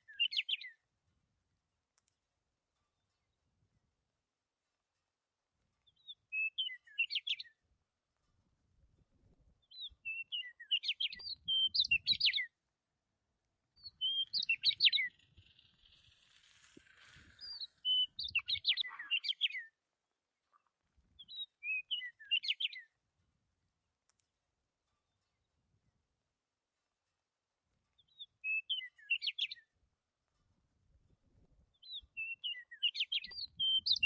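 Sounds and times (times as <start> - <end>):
small bird twittering: 0.0 - 0.7, 5.8 - 7.5, 9.7 - 12.5, 13.8 - 19.7, 21.2 - 22.8, 28.0 - 29.6, 31.8 - 34.0.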